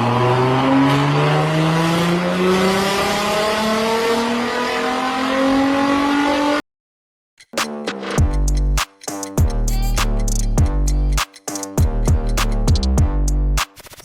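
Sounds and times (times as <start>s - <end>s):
car engine accelerating: 0.0s - 6.6s.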